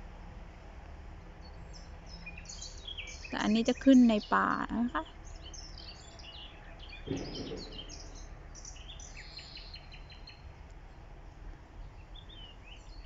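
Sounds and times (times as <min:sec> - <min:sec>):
songbirds singing and chirping: 0:01.1 - 0:13.0
bird trill: 0:01.4 - 0:10.4.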